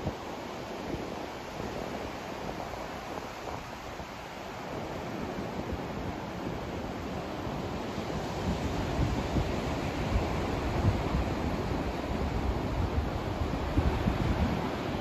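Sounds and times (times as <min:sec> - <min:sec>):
white noise hiss: 0:00.0 - 0:15.0.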